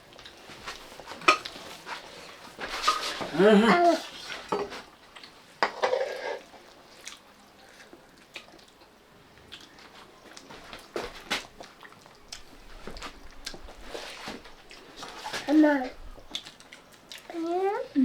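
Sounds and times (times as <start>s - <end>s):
soft chewing: 0.0s - 18.0s
plates and dishes clinking: 1.1s - 1.6s, 4.5s - 4.8s, 5.6s - 6.5s.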